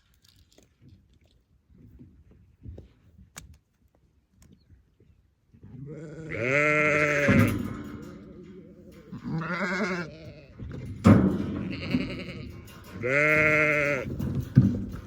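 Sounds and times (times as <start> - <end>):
sheep bleating: 5.8 - 7.6, 8.4 - 10.6, 11.6 - 14.1.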